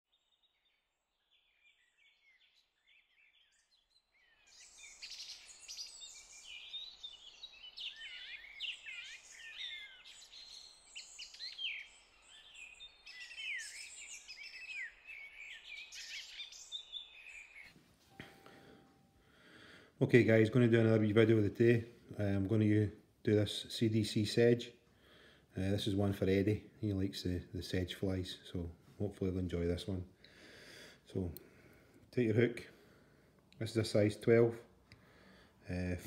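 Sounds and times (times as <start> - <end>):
birds chirping and whistling: 1.2 - 19.2
soft background hiss: 17.7 - 36.0.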